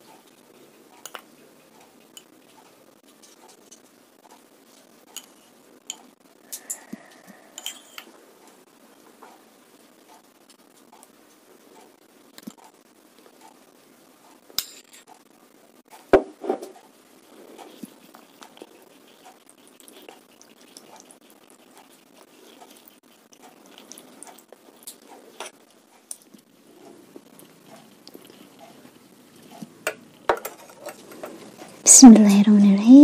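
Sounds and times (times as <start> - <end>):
cutlery clinking against a bowl: 1.0 - 1.3, 2.1 - 2.3, 5.1 - 6.7, 7.6 - 8.1, 14.6 - 15.1, 29.6 - 31.6.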